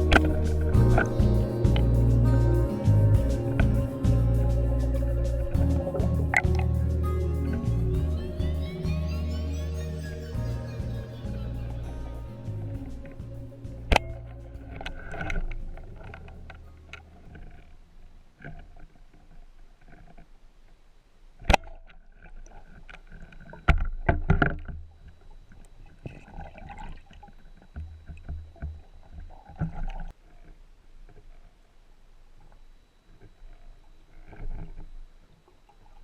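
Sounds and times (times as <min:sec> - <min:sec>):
low rumble: 0:00.0 - 0:17.2.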